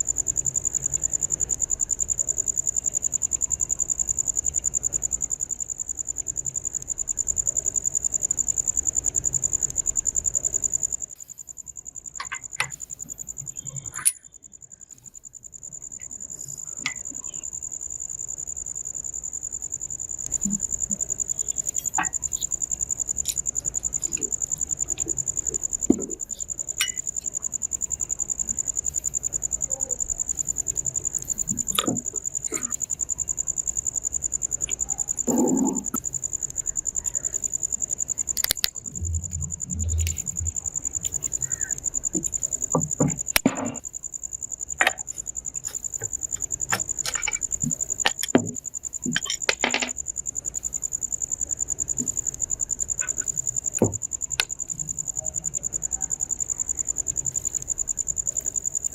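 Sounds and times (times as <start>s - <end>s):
high-pitched insect trill: 0.0s - 58.9s
knocks and clatters: 42.1s - 43.9s, 44.8s - 50.0s.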